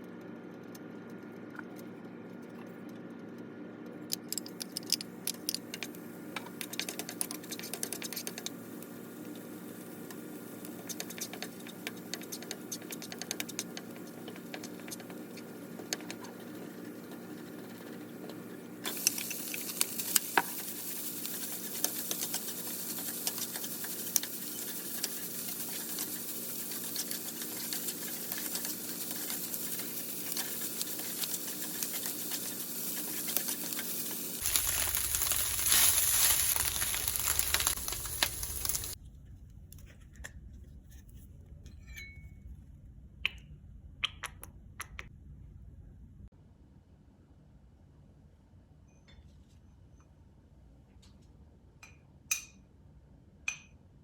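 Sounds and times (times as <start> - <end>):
chicken sizzling in a pan: 6.7 - 39.0.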